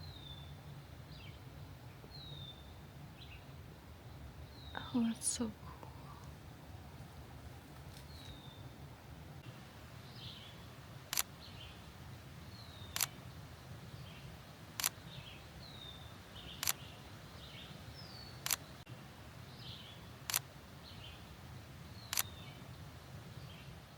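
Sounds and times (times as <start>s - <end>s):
camera shutter firing: 13.0s - 13.2s, 22.1s - 22.3s.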